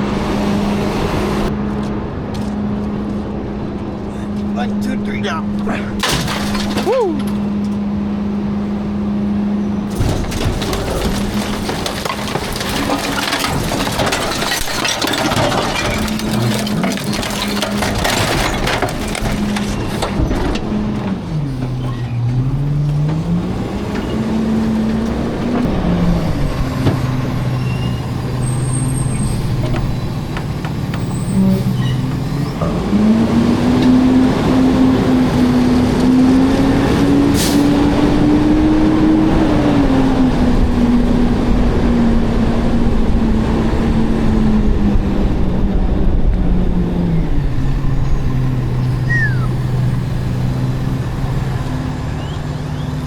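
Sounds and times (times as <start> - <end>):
garbage truck diesel engine: 0.0 - 53.0
clattering: 9.9 - 23.2.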